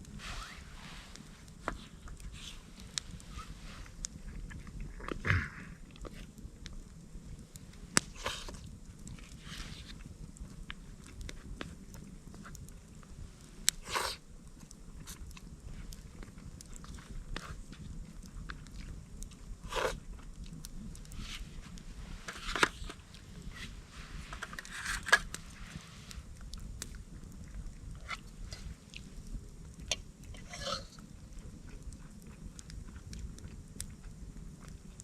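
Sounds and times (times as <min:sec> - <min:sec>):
person chewing: 0:13.7 - 0:20.6, 0:26.4 - 0:34.8.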